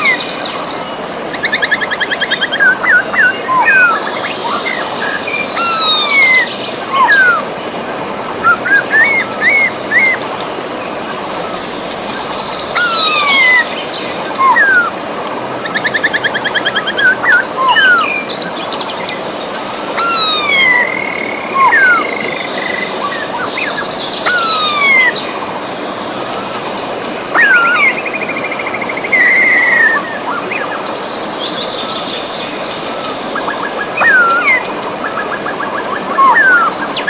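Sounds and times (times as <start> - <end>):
birds singing: 0.0 - 37.0
river rushing: 0.0 - 37.0.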